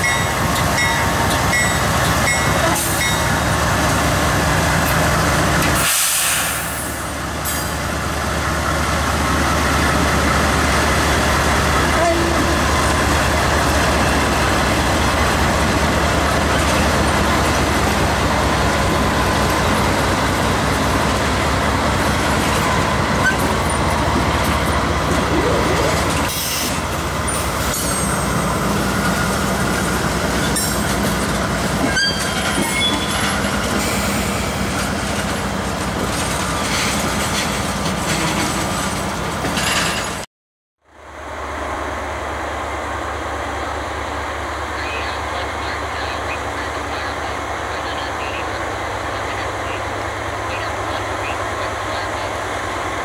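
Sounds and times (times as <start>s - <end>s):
diesel locomotive passing: 0.0s - 40.2s, 40.8s - 53.0s
freight cars rolling on rails: 0.0s - 40.3s.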